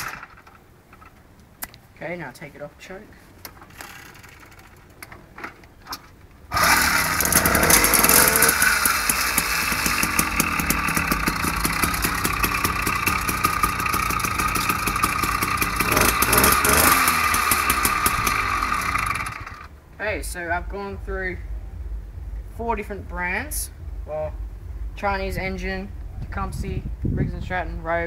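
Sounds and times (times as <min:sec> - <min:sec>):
two-stroke engine buzzing: 0:00.0 - 0:00.5, 0:06.5 - 0:19.7.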